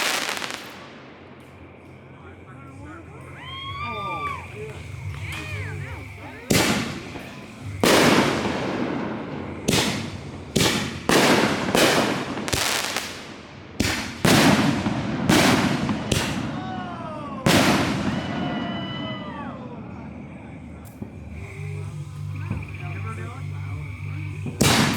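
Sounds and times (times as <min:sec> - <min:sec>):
fireworks booming: 0:00.0 - 0:24.9
falling whistle: 0:03.0 - 0:08.6, 0:18.0 - 0:20.0.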